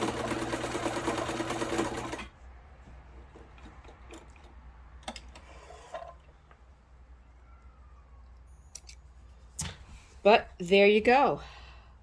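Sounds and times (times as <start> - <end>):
sewing machine running: 0.0 - 2.3.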